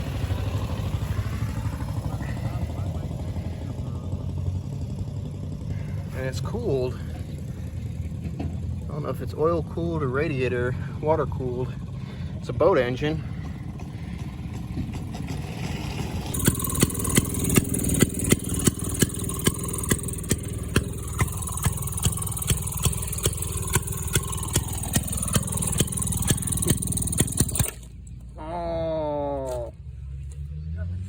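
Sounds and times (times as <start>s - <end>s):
small engine running: 0.0s - 28.5s
sharp clicking: 16.3s - 28.3s.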